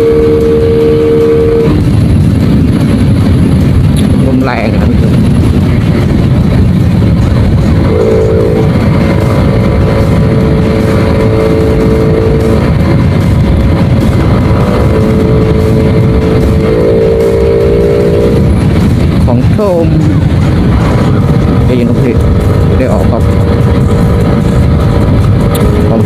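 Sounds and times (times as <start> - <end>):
motorcycle engine cruising: 0.0 - 26.0
wind buffeting microphone: 0.0 - 26.0.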